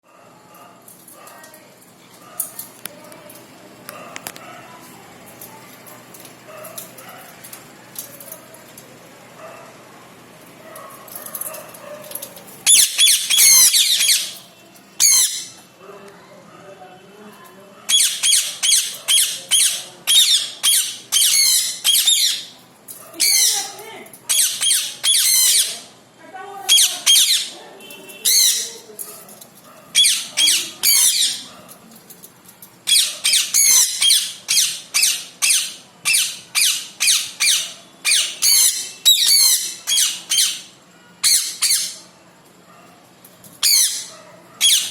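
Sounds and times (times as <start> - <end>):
parrot screeching: 12.6 - 14.4, 15.0 - 15.6, 17.9 - 22.6, 23.2 - 25.9, 26.7 - 27.6, 28.2 - 28.9, 29.9 - 31.5, 32.8 - 42.1, 43.6 - 44.9.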